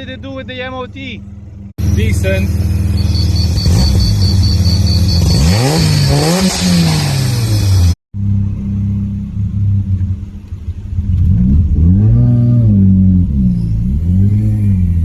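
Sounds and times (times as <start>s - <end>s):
rotary engine revving: 1.8s - 8.0s, 9.8s - 15.0s.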